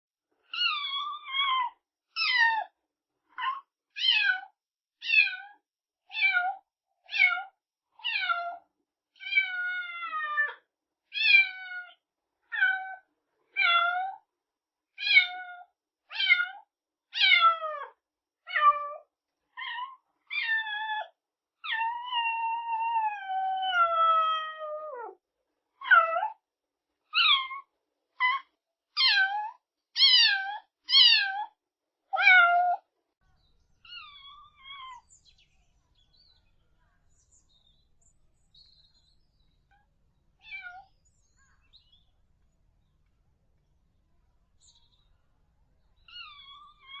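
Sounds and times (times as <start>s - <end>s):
kitten meowing: 40.4s - 40.9s.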